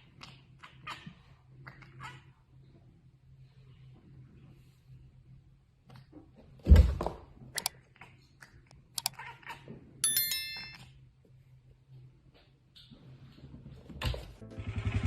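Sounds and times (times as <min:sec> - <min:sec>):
short ringing ding: 0:10.0 - 0:10.9.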